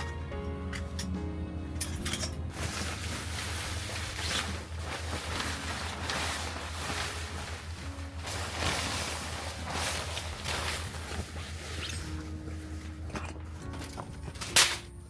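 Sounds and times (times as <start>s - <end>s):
sea waves washing on shore: 2.5s - 12.2s.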